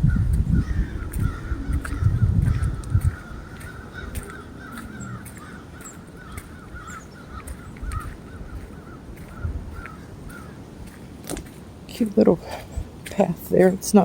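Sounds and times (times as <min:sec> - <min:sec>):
flock of birds calling: 0:00.0 - 0:11.0
footsteps: 0:00.0 - 0:14.0.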